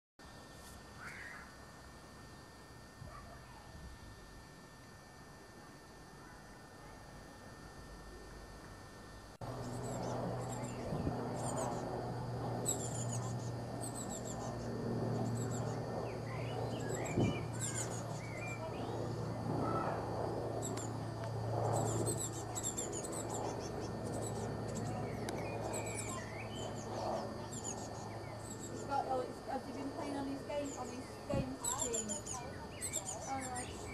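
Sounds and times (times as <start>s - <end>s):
steady low hum: 0.2s - 33.9s
songbirds chirping: 29.8s - 33.9s.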